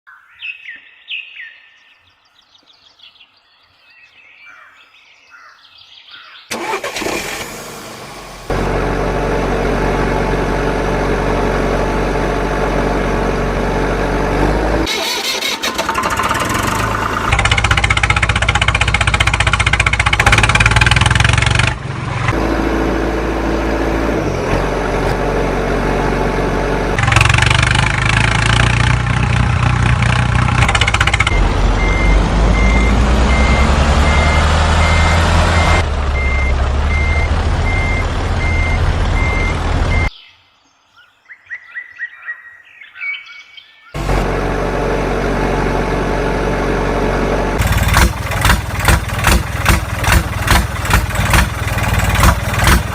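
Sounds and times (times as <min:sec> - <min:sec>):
heavy truck engine running: 0:06.5 - 0:40.1, 0:44.0 - 0:52.9
high reversing beeps: 0:31.3 - 0:40.2.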